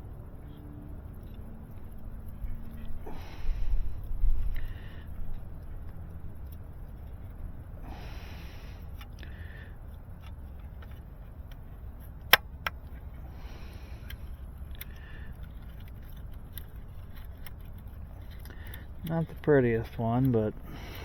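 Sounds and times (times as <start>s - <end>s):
steady low rumble: 0.0s - 21.0s
handling rustles: 9.9s - 21.0s
sharp clicks: 12.2s - 13.0s.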